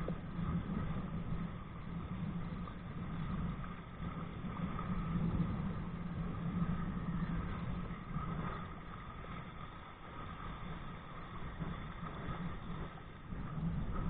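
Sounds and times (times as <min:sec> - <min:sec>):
low hum: 0:00.0 - 0:14.0
water rushing: 0:00.0 - 0:14.0.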